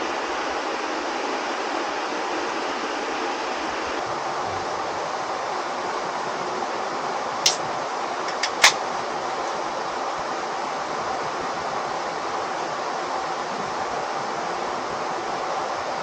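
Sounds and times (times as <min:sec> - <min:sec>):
flowing water rushing: 0:00.0 - 0:16.0
sharp clicks or knocks: 0:08.3 - 0:08.8.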